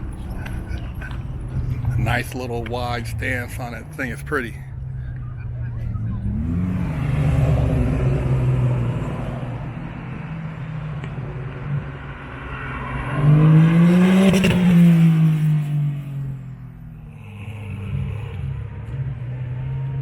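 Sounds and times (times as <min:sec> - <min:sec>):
car engine accelerating: 0:00.0 - 0:20.0
car accelerating past: 0:06.0 - 0:16.8.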